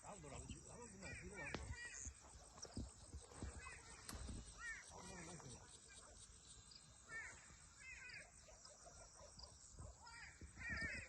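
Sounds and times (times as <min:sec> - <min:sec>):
faint crow cawing: 0:00.8 - 0:02.2, 0:03.4 - 0:05.4, 0:07.1 - 0:08.4, 0:10.0 - 0:11.0.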